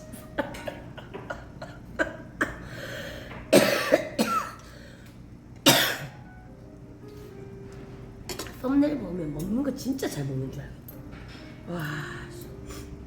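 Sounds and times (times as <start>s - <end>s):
woman coughing: 0.4s - 2.7s, 3.5s - 4.6s, 5.6s - 6.1s.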